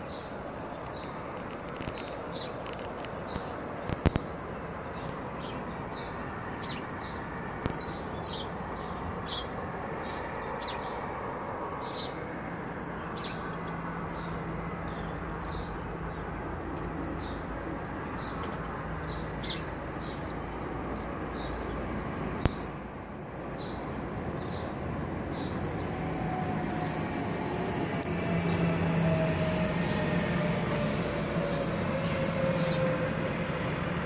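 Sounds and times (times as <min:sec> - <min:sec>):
small birds chirping: 0:00.0 - 0:11.0, 0:22.4 - 0:22.8.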